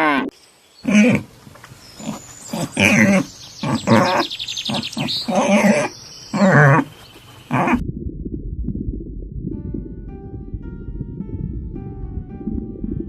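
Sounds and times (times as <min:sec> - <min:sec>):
low rumble: 0:07.8 - 0:13.0.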